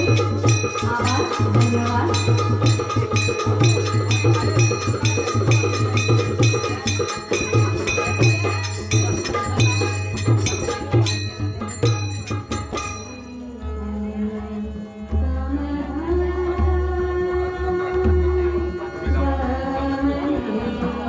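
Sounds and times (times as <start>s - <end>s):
hand cymbals struck: 0.0s - 13.9s.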